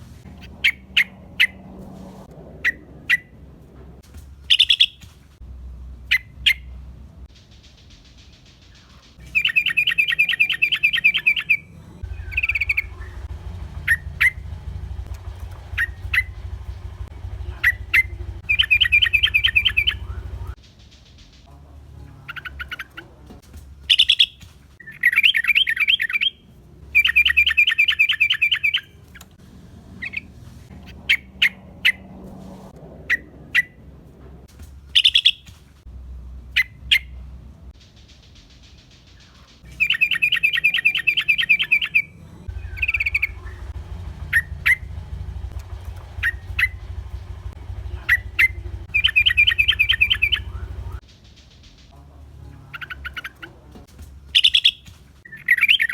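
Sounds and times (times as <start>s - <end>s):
bird chattering song: 4.5s - 5.0s, 7.4s - 20.6s, 23.9s - 26.4s, 27.0s - 29.3s, 35.0s - 35.5s, 37.9s - 51.0s, 52.5s - 53.6s, 54.3s - 55.9s
low hum: 5.3s - 23.8s, 39.6s - 54.4s.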